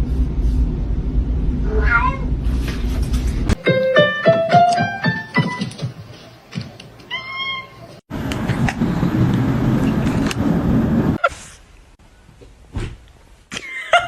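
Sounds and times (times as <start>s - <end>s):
noisy rumble: 0.0s - 3.6s, 8.1s - 12.0s
cat meowing: 1.7s - 2.3s, 7.1s - 7.9s.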